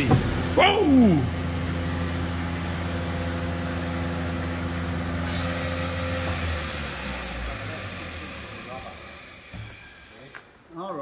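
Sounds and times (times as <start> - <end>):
hiss of escaping air: 5.2 - 7.1.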